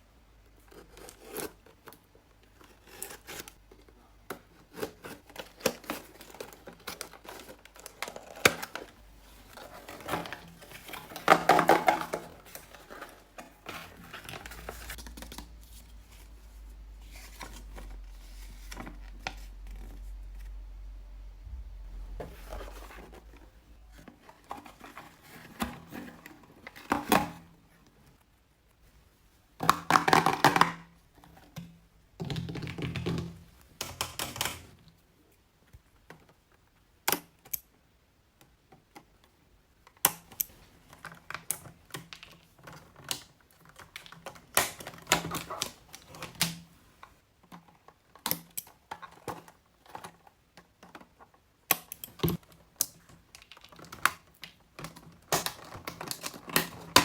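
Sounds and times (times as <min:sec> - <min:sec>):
packaging crinkling and rustling: 0:00.7 - 0:20.5, 0:40.6 - 0:46.7, 0:52.2 - 0:57.0.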